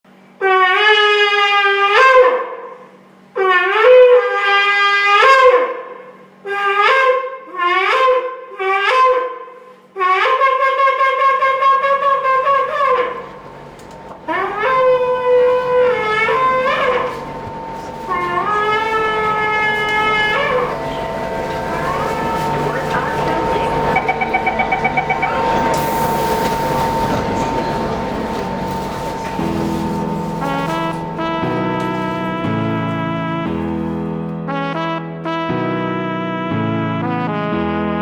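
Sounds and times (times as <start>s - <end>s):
shofar blasts: 11.1s - 34.4s.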